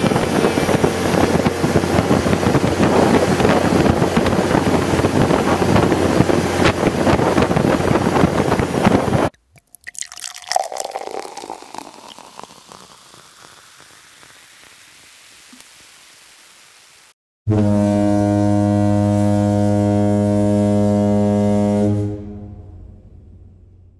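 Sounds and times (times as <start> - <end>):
rushing water from boat: 0.0 - 9.3, 9.9 - 12.6
wind buffeting microphone: 0.0 - 9.3
water dripping and splashing: 9.3 - 15.7.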